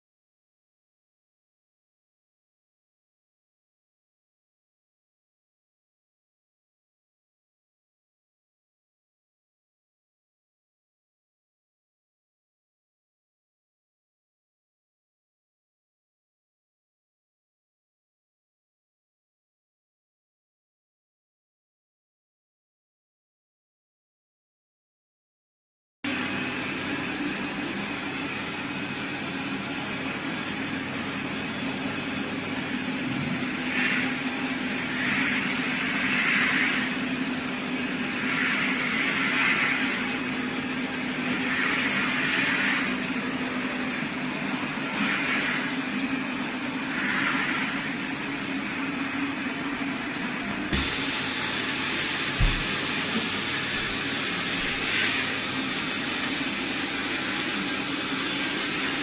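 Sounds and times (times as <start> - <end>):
robot vacuum motor hum: 46.7 - 57.4
short knocks: 50.7 - 51.1.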